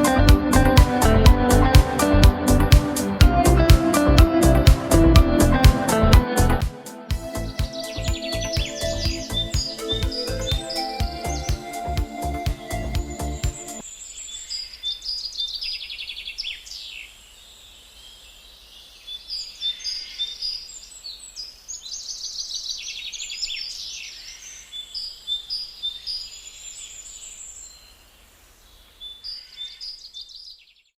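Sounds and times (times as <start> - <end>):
songbirds singing: 7.1 - 31.0.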